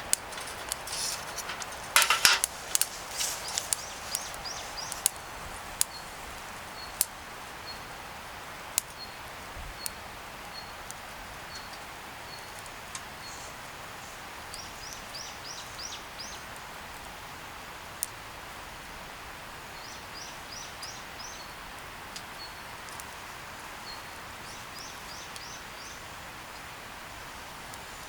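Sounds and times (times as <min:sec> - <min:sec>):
steady outdoor hiss: 0:00.0 - 0:28.0
small bird singing: 0:02.5 - 0:07.0, 0:14.5 - 0:16.5.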